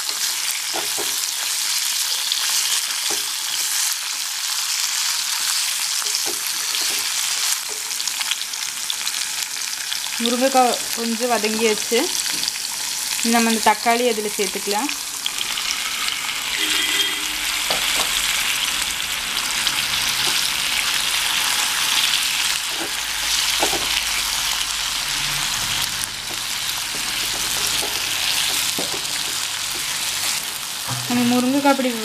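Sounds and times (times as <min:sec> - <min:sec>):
food sizzling in hot oil: 0:00.0 - 0:32.0
wooden spatula knocking a pan: 0:26.9 - 0:29.9, 0:30.9 - 0:31.4.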